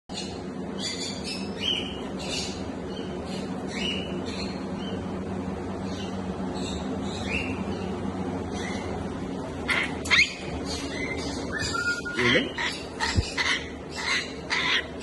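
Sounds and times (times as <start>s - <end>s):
steady low hum: 0.1s - 15.0s
parrots chirping and squawking: 5.9s - 15.0s.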